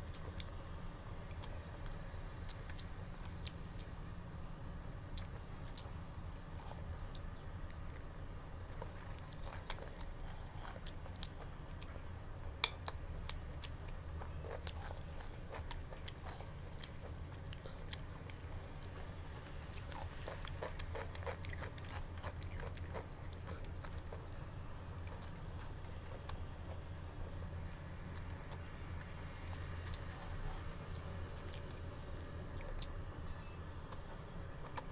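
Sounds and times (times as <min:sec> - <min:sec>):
steady low hum: 0:00.0 - 0:34.9
person chewing with mouth clicks: 0:04.8 - 0:19.2, 0:19.8 - 0:24.4.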